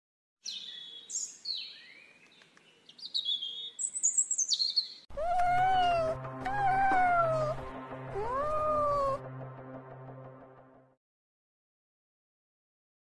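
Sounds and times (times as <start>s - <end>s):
birds chirping: 0.4s - 5.1s
background music: 5.1s - 11.0s
cat meowing: 5.2s - 9.2s.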